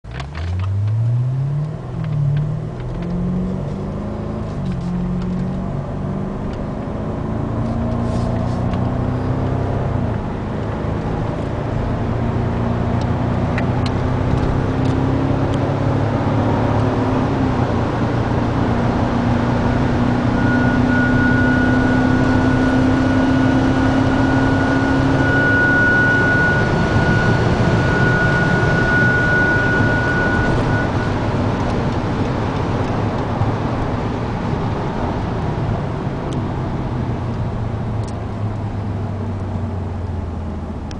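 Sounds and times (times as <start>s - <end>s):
car engine revving: 0.4s - 40.9s
road rushing noise: 0.5s - 40.9s
steady high tone: 20.2s - 31.6s.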